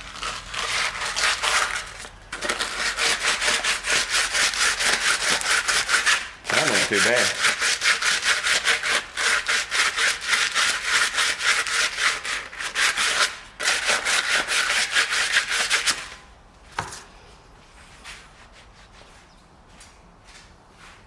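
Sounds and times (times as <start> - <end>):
hand tool scraping: 0.0 - 16.2.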